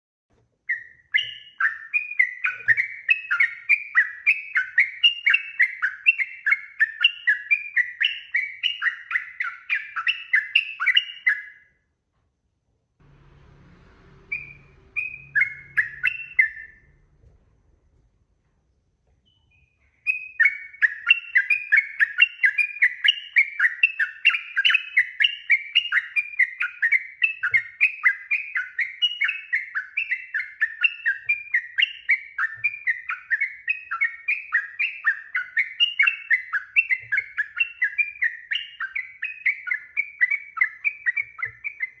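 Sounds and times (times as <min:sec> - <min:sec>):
bird singing bubbling notes: 0:13.4 - 0:17.2.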